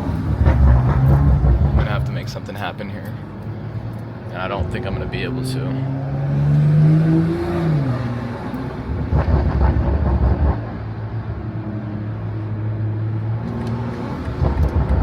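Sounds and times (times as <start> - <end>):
car engine revving: 0.0 - 2.6, 4.4 - 15.0
heavy low rumble: 0.0 - 3.2.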